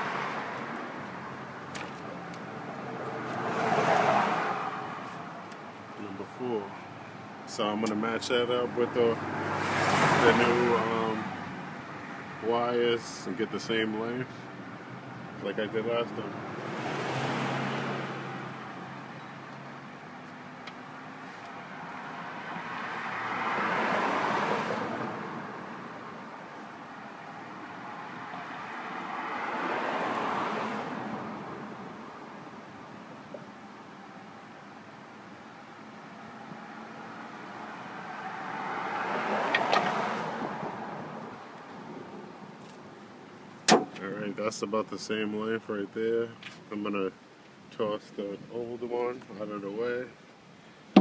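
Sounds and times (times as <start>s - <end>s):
car passing by: 0.0s - 1.3s, 2.2s - 5.4s, 8.8s - 12.3s, 16.2s - 19.7s, 21.1s - 32.1s, 36.6s - 42.3s
road traffic noise: 0.0s - 51.0s.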